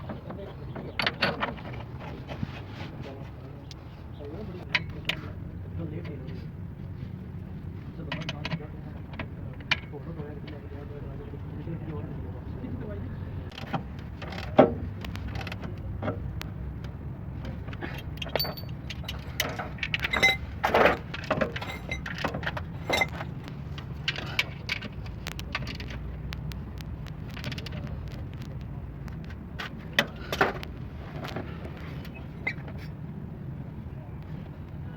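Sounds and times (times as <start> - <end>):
metallic clinks and clanks: 17.9 - 23.4.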